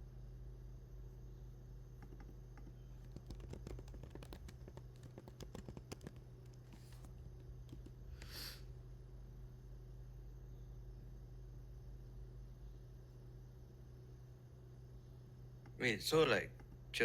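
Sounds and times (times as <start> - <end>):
low electrical hum: 0.0 - 17.0
typing on computer keyboard: 2.0 - 8.4.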